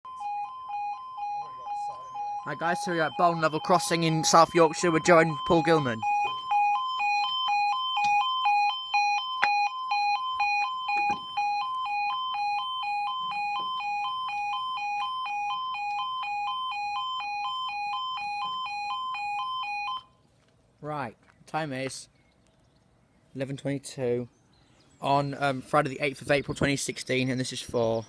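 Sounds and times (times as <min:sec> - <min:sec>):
level crossing alarm warbling: 0:00.0 - 0:20.1.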